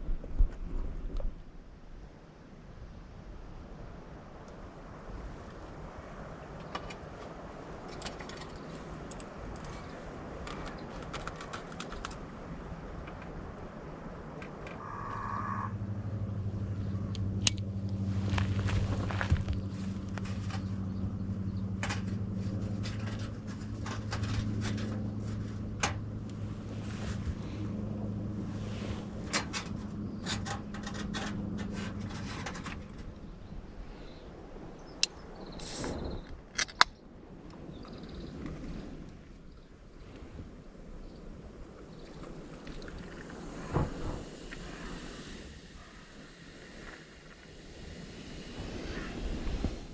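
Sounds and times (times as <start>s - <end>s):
low engine hum: 0.0s - 49.9s
light clicks and rattles: 6.6s - 13.4s, 17.1s - 27.7s, 29.2s - 33.3s
rustling: 17.9s - 20.8s, 26.3s - 29.8s.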